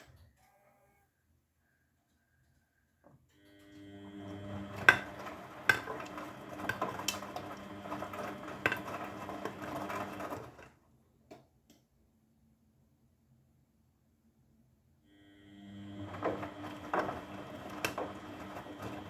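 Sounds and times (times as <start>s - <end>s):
washing machine drum whine: 3.6s - 10.7s, 15.5s - 19.0s.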